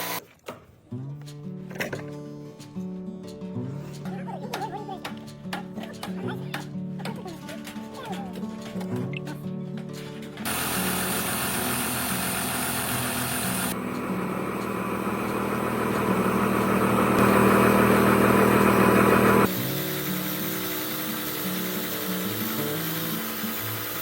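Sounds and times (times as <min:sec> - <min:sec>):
workshop machinery humming: 0:00.0 - 0:00.2, 0:10.4 - 0:24.0
background music: 0:01.5 - 0:10.4.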